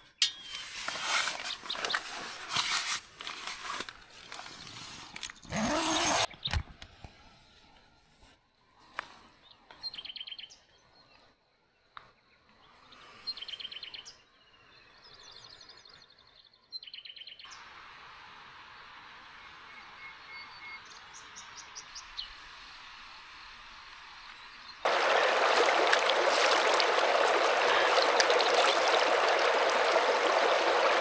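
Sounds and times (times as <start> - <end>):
rushing hiss of running water: 22.2 - 31.0.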